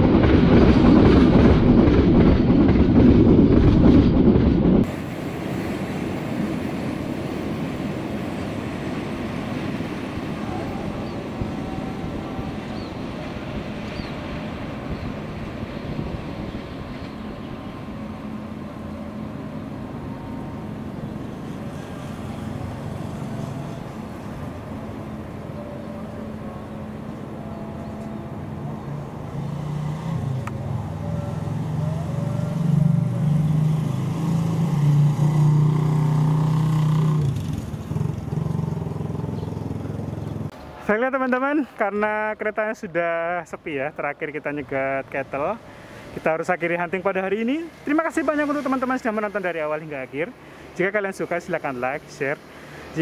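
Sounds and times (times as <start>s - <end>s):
train wheels rumbling on rail: 0.0s - 39.1s
motor vehicle engine drone: 14.9s - 40.6s.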